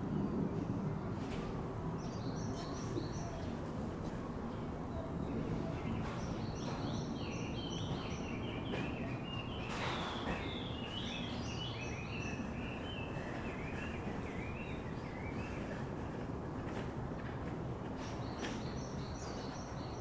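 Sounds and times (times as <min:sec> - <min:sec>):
steady low background noise: 0:00.0 - 0:20.0
small birds chirping: 0:05.0 - 0:16.2.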